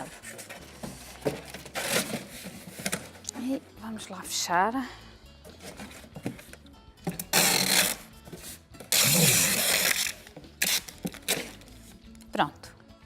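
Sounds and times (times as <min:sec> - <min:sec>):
packing tape ripping: 0:07.1 - 0:08.1, 0:08.8 - 0:11.7.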